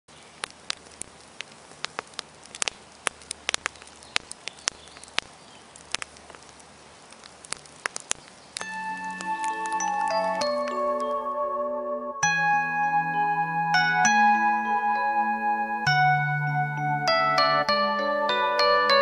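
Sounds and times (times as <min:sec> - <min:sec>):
crackling clicks and pops: 0:00.1 - 0:11.1
glockenspiel music: 0:08.6 - 0:19.0.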